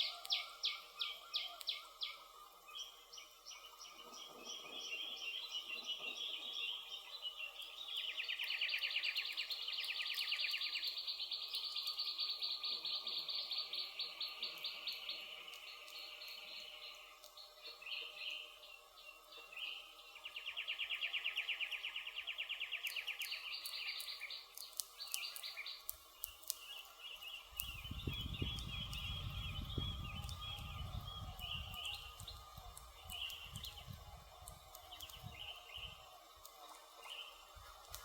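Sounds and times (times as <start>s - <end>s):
birds singing: 0.0s - 38.0s
campfire crackling: 14.3s - 17.8s, 22.1s - 38.0s
low rumbling with soft thumps: 27.7s - 32.4s.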